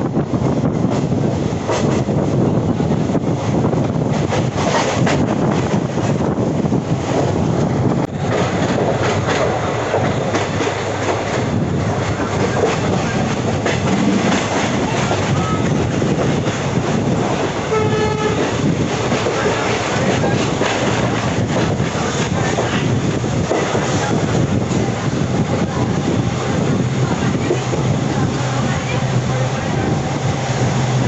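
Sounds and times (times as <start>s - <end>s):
train wheels clattering over joints: 8.0s - 24.9s
train horn: 17.7s - 18.6s.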